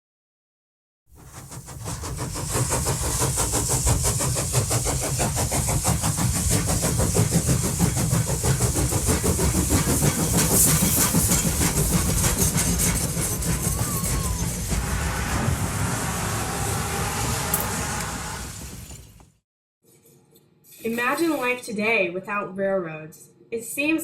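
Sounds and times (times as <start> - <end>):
steam locomotive chuffing: 1.1 - 19.2
steam hiss: 1.2 - 19.2
low rumble: 13.8 - 19.2.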